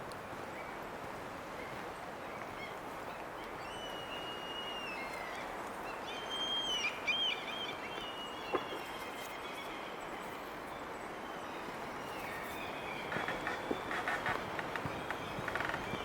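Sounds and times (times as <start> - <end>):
songbirds whistling: 3.4 - 9.9.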